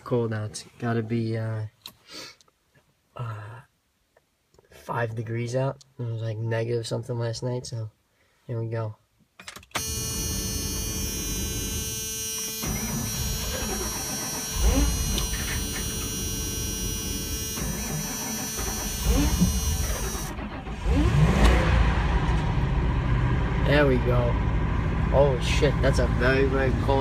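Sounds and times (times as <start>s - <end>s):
starter motor cranking engine: 9.8s - 21.7s
van engine running: 9.8s - 27.0s.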